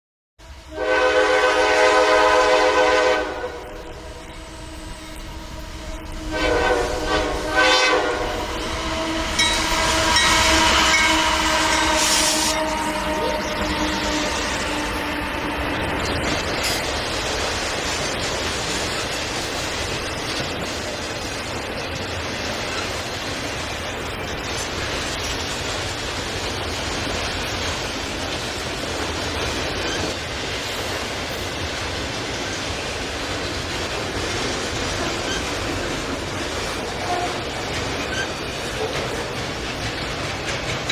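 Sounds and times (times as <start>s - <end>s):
train clattering: 0.4s - 40.9s
locomotive air horn blasts: 0.6s - 15.9s, 37.0s - 37.5s.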